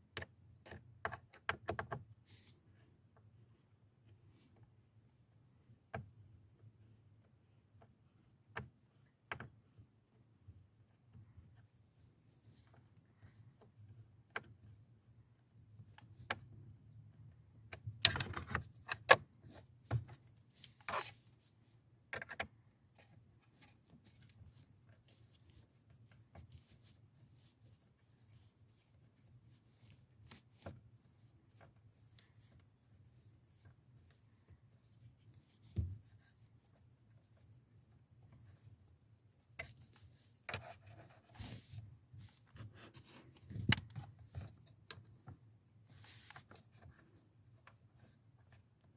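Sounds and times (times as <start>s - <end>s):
hands handling parts: 17.7s - 38.8s, 39.4s - 48.8s.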